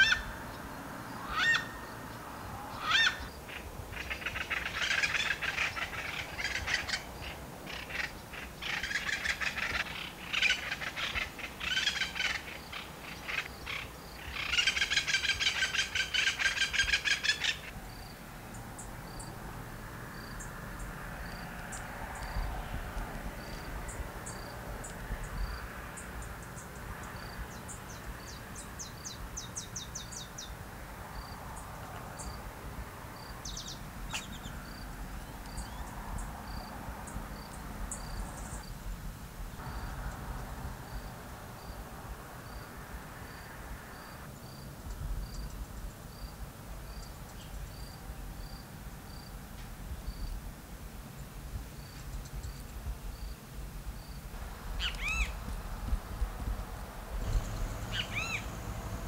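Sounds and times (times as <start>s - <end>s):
birds calling: 0.0s - 19.4s, 33.2s - 38.7s, 54.6s - 56.0s, 57.1s - 59.0s
faint insect ticking: 51.8s - 53.4s.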